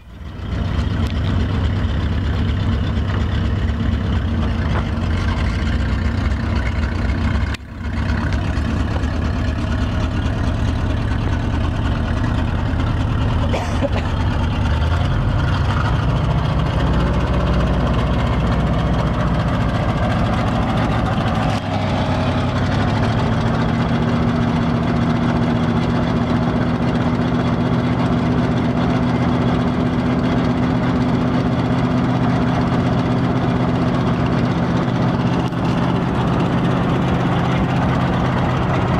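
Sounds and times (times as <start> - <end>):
truck engine running: 0.0 - 38.9.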